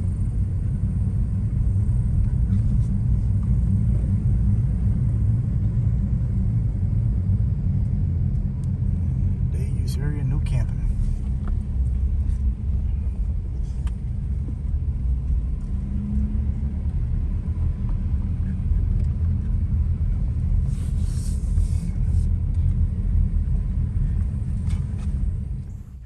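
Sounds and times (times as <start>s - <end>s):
car road rumble: 0.0s - 26.0s.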